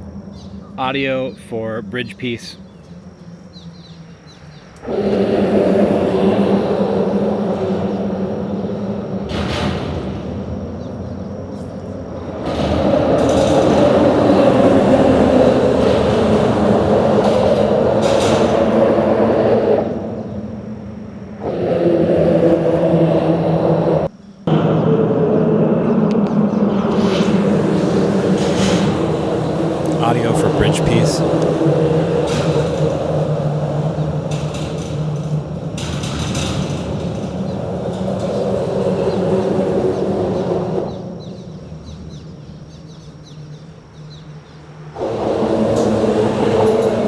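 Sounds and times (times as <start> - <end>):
traffic drone: 0.0 - 35.9.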